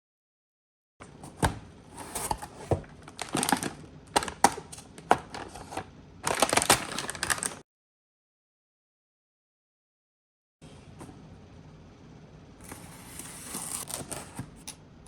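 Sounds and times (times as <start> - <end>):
plastic packaging crinkling: 2.0 - 7.6.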